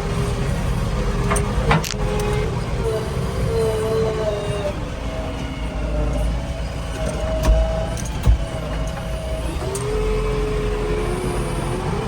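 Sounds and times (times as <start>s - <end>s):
diesel engine running: 0.0s - 12.0s
sharp knocks: 7.4s - 8.5s.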